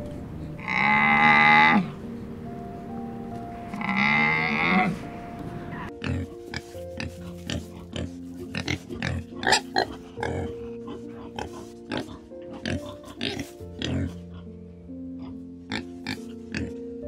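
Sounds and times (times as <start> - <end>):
soft background music: 0.0 - 17.0
peccaries grunting: 0.6 - 2.0, 3.7 - 5.2, 5.8 - 14.5.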